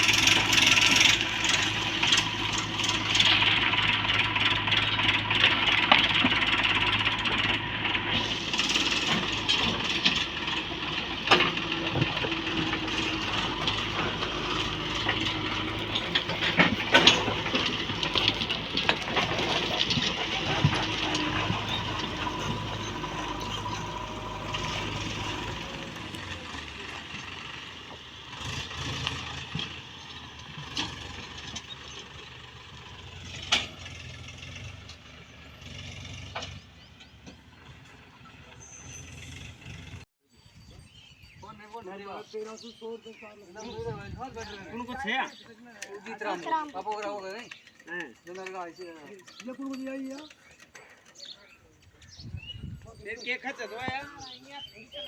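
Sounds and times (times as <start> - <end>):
metallic knocks and rattles: 0.0 - 38.4
diesel engine running: 0.0 - 40.1.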